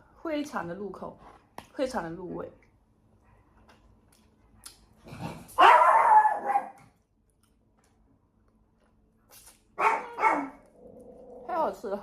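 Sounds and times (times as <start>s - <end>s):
dog barking and whining: 5.6s - 6.9s, 9.8s - 11.3s.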